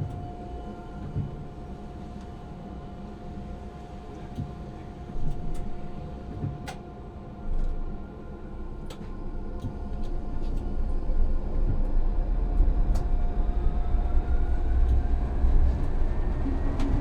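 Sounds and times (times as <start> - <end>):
tram running gear rumble: 9.1 - 17.0.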